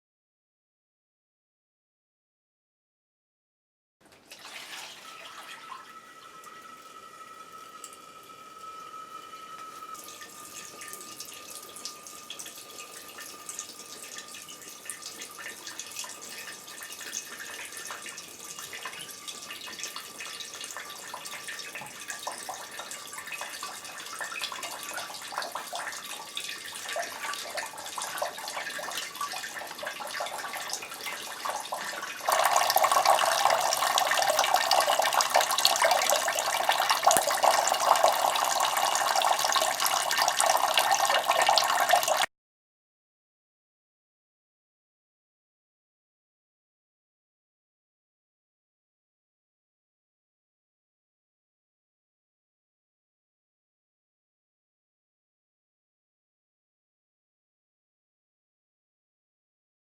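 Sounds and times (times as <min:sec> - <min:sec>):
faint steady high tone: 0:04.9 - 0:42.2
water drops pattering: 0:09.7 - 0:42.3.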